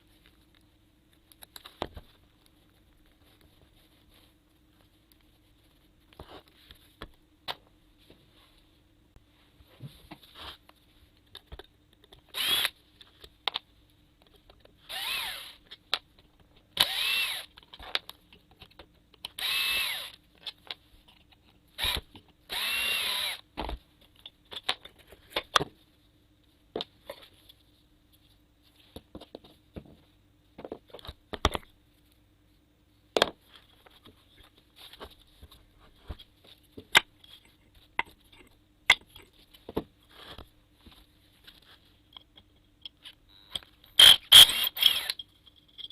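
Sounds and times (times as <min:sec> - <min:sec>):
screws and parts clicking: 0:12.0 - 0:12.8, 0:14.9 - 0:15.8, 0:16.8 - 0:18.1, 0:21.8 - 0:23.4, 0:42.2 - 0:45.9
cordless drill whining: 0:12.3 - 0:12.7, 0:14.9 - 0:15.6, 0:16.8 - 0:17.5, 0:19.4 - 0:20.2, 0:21.8 - 0:23.4, 0:44.0 - 0:45.2.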